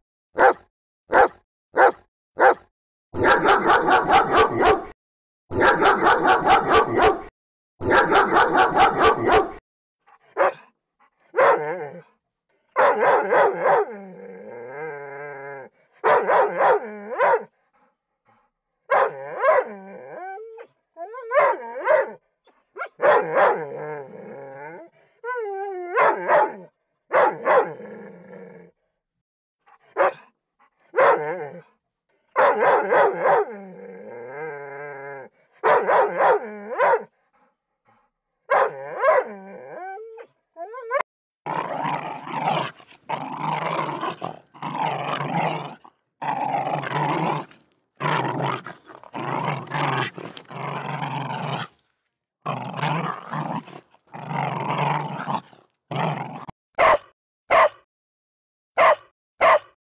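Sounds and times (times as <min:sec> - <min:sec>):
dog growling: 0:09.1 - 0:12.8, 0:13.5 - 0:16.0, 0:23.2 - 0:26.7, 0:27.6 - 0:28.9, 0:33.1 - 0:35.6, 0:38.6 - 0:51.8, 0:52.5 - 0:56.5
dog whimpers and whines: 0:19.3 - 0:22.6, 0:24.5 - 0:26.0, 0:38.8 - 0:41.0.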